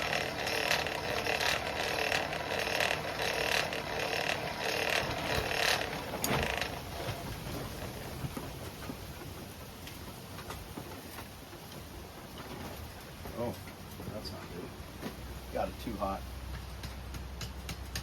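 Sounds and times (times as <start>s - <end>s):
forge blower whirring: 0.0s - 7.8s.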